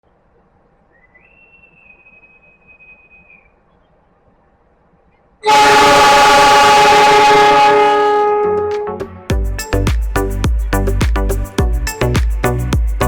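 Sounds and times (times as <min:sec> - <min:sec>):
faint high whistle: 0:00.9 - 0:03.6
train horn blasting: 0:05.4 - 0:09.0.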